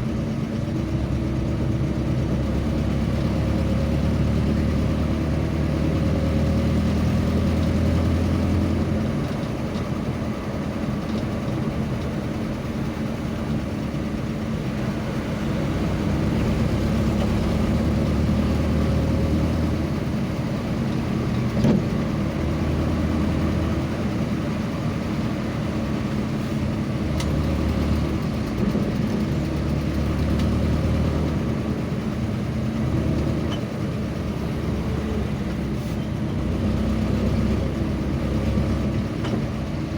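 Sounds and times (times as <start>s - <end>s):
vehicle engine humming: 0.0s - 39.9s.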